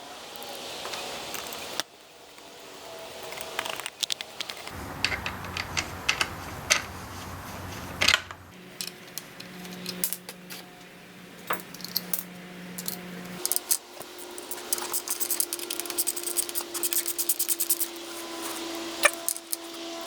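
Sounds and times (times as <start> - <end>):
low steady hum: 4.7 - 8.6
metal tools clinking: 11.7 - 17.9.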